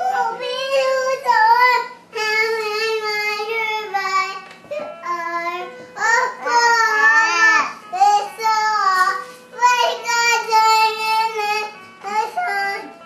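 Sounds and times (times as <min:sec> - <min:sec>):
child singing: 0:00.0 - 0:13.0.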